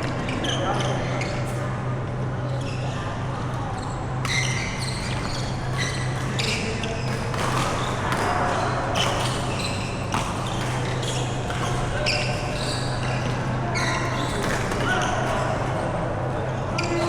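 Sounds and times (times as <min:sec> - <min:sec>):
shoe squeaks on court floor: 0:00.0 - 0:01.7, 0:02.5 - 0:15.4
racket striking shuttlecock: 0:07.0 - 0:11.8.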